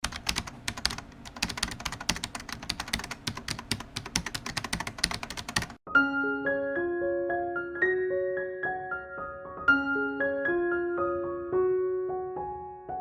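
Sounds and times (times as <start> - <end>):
keyboard typing clicks: 0.0 - 5.8
piano music: 4.5 - 13.0.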